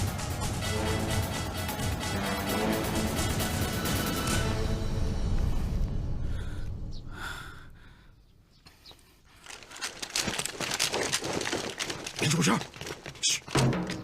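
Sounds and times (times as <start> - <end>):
music: 0.0 - 7.2, 13.5 - 14.0
person breathing hard: 6.1 - 10.1
dense crackling rustle: 9.3 - 13.3.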